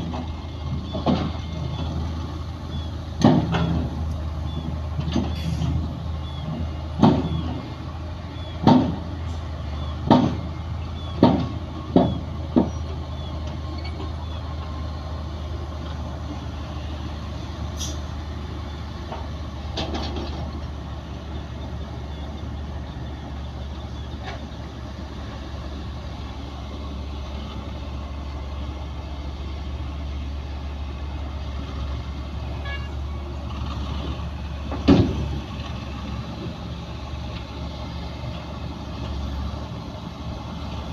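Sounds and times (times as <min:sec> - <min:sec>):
heavy diesel machinery running: 0:00.0 - 0:40.9.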